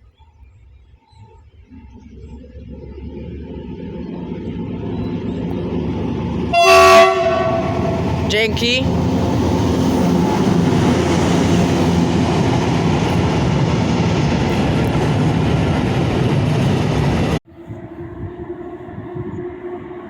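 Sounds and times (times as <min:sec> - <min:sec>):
low train hum: 0:00.0 - 0:20.0
train wheels rumbling on track: 0:01.6 - 0:17.4.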